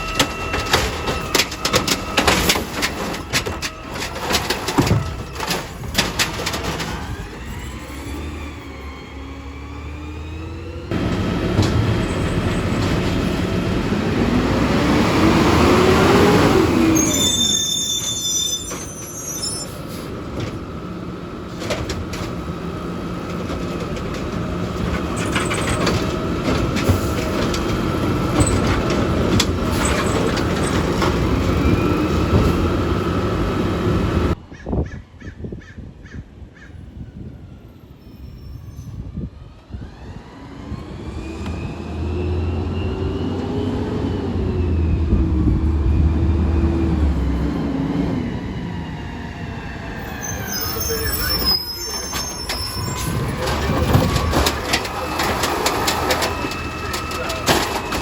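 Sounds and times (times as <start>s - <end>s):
high metallic squeals: 0.0s - 10.9s, 15.9s - 20.0s, 49.9s - 58.0s
garbage truck engine: 0.0s - 34.4s, 39.5s - 58.0s.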